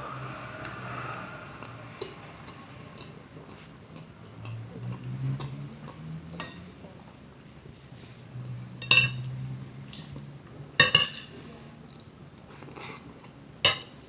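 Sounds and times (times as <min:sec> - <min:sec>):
soft chewing: 0:01.6 - 0:08.6, 0:11.4 - 0:13.4
fork clinking against plate: 0:08.8 - 0:09.2.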